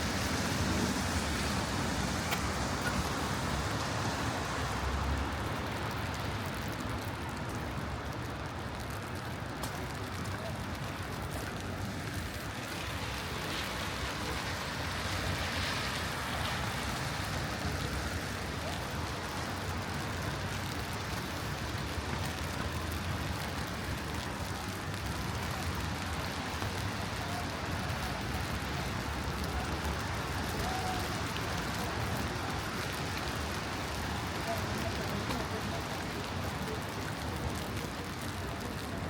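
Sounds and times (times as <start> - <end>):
rain falling: 0.0 - 39.0
traffic rumble: 0.0 - 39.0.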